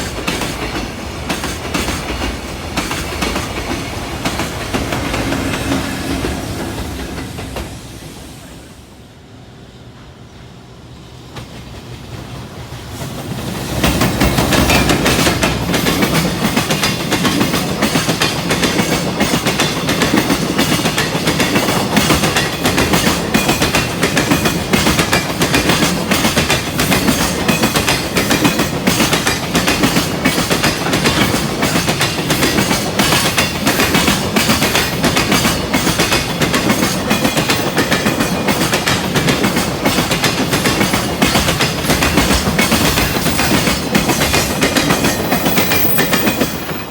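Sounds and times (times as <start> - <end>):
train passing: 0.0 - 46.9
freight wagons clattering over rails: 13.0 - 46.9.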